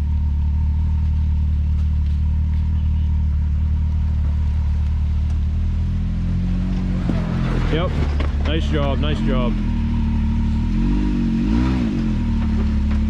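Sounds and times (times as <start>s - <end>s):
utility vehicle engine idling: 0.0s - 13.0s.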